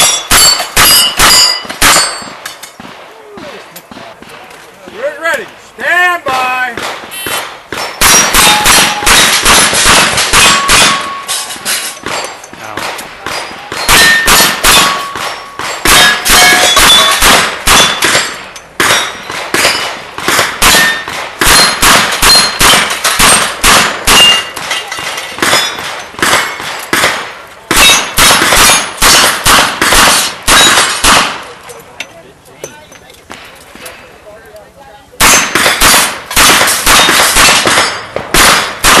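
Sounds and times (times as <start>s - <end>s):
steel plate clanging: 0.0s - 2.8s, 7.9s - 12.6s, 13.3s - 17.2s, 20.7s - 26.2s.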